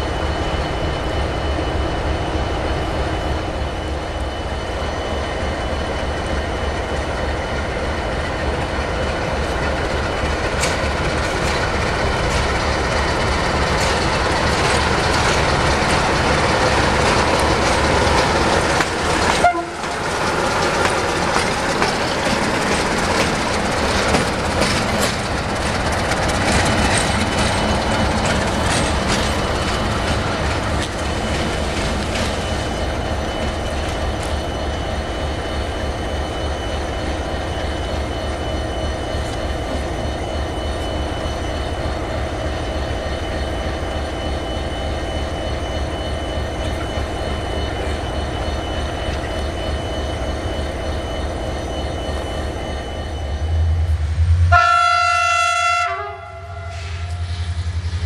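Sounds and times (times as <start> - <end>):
diesel train engine hum: 0.0 - 58.0
wheels clicking over rail joints: 10.3 - 32.4.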